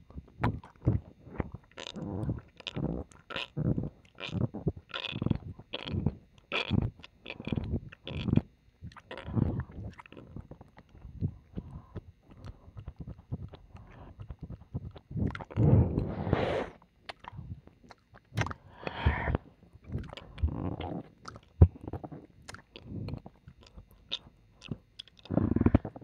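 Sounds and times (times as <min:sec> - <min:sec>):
wet mouth licking sounds: 0:06.6 - 0:26.0
lip smacks and clicks: 0:17.0 - 0:26.0.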